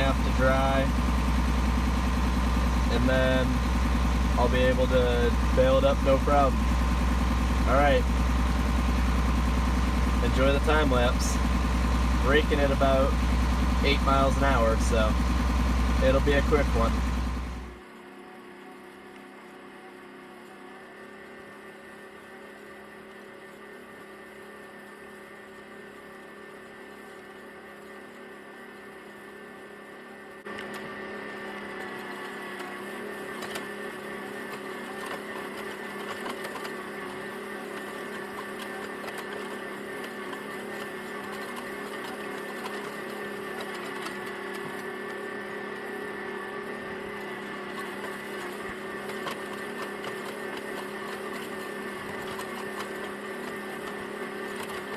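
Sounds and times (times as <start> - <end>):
tractor diesel engine drone: 0.0 - 17.8, 31.8 - 54.9.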